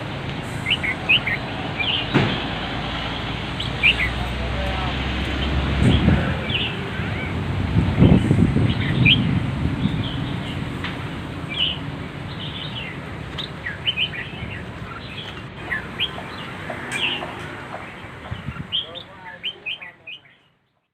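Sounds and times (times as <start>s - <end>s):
small birds chirping: 0.0s - 20.9s
low rumble: 4.9s - 12.2s.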